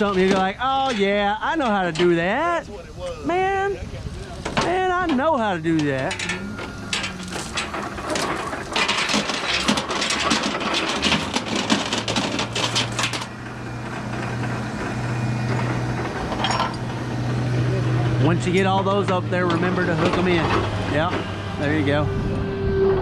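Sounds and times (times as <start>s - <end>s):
clattering and rustling: 5.9s - 17.0s.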